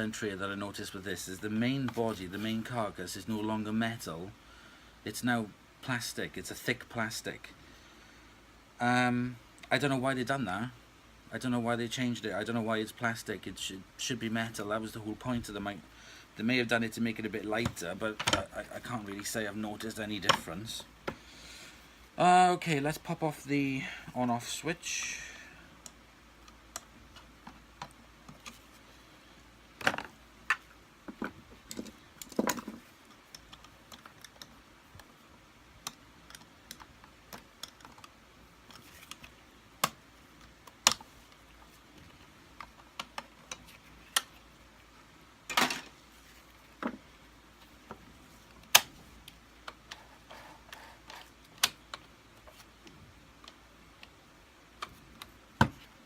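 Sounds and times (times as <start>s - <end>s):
plastic parts clicking and knocking: 17.6s - 19.3s, 20.2s - 21.2s, 29.8s - 35.1s, 35.7s - 44.5s.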